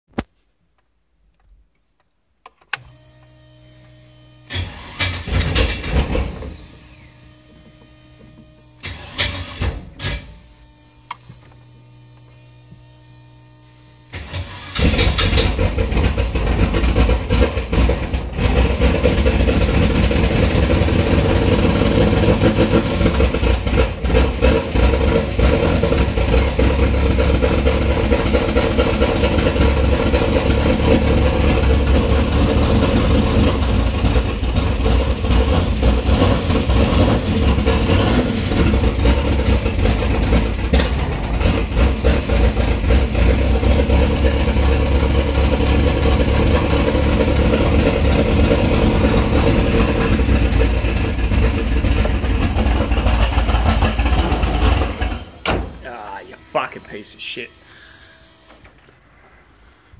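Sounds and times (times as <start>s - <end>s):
car engine idling: 14.2s - 58.5s.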